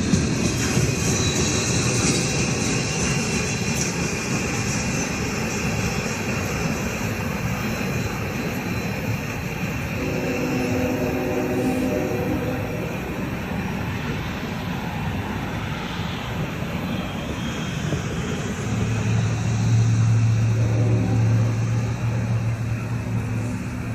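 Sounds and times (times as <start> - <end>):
train wheels rumbling on rails: 0.0 - 23.9
steady low drone: 9.6 - 14.6, 18.2 - 23.9.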